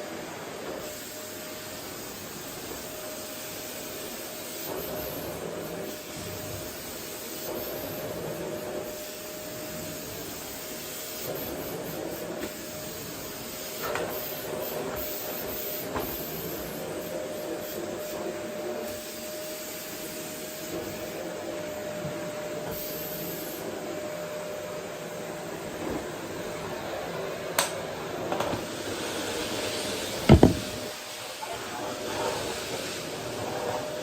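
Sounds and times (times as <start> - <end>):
vacuum cleaner running: 0.0 - 34.0
light knocks: 30.3 - 30.9.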